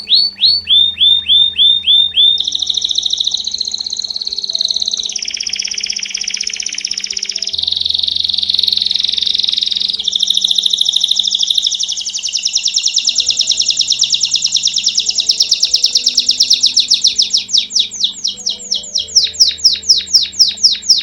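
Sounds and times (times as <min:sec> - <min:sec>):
canary singing fast trills: 0:00.0 - 0:21.0.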